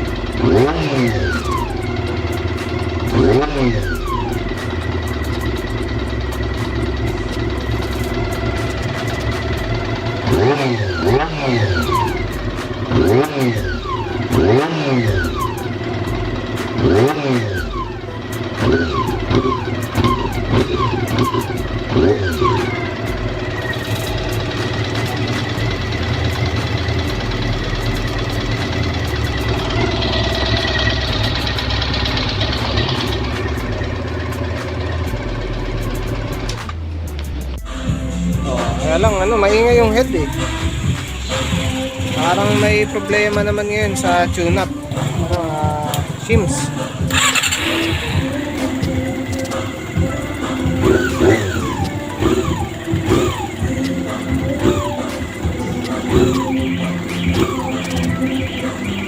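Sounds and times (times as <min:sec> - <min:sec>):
light engine ticking: 0:00.0 - 0:59.0
motorcycle engine idling and revving: 0:00.0 - 0:59.0.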